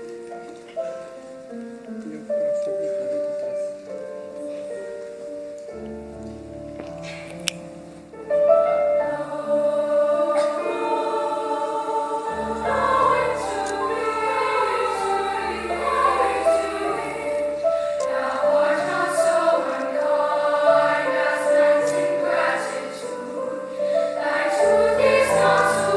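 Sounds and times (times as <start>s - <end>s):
piano accompaniment: 0.0s - 25.9s
choir singing: 8.1s - 25.9s.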